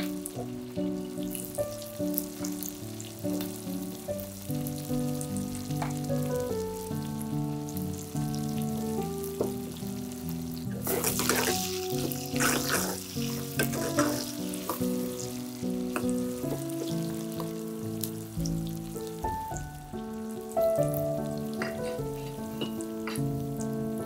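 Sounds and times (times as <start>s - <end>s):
background music: 0.0s - 24.0s
food sizzling in hot oil: 0.0s - 24.0s
stirring in a pot: 10.7s - 15.2s.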